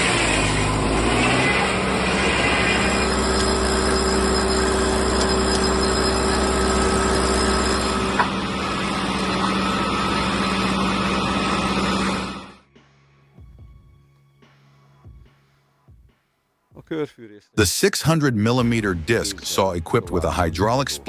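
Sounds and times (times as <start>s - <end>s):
wood-processing machinery running: 0.0s - 12.6s.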